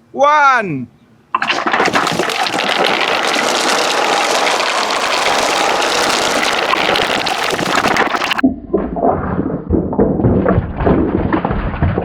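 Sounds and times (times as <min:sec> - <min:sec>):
marbles rattling down wooden track: 0:02.0 - 0:08.4.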